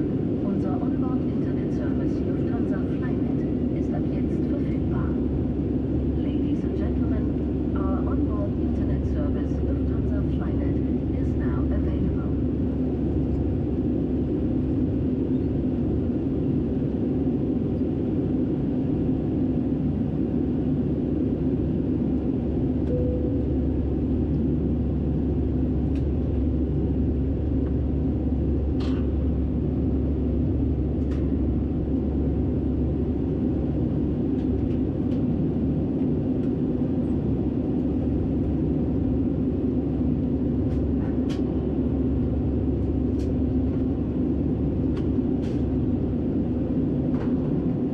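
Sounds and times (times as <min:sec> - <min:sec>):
airliner cabin drone: 0:00.0 - 0:47.9.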